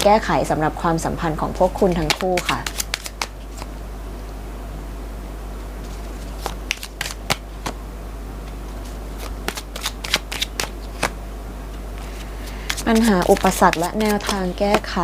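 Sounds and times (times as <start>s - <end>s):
cards snapping and flicking: 2.0s - 3.7s, 6.3s - 7.8s, 9.2s - 11.2s, 12.0s - 14.5s.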